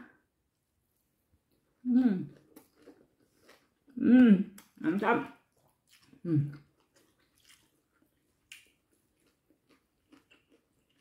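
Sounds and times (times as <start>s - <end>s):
chewing mouth clicks: 5.5s - 11.0s.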